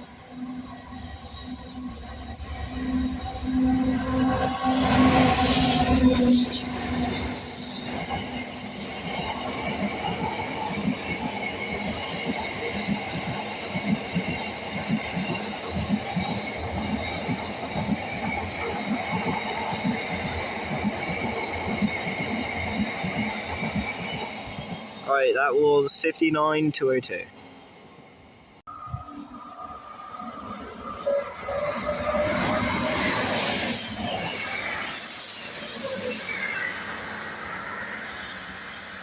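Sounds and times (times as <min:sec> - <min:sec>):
diesel locomotive engine: 0:00.0 - 0:26.2.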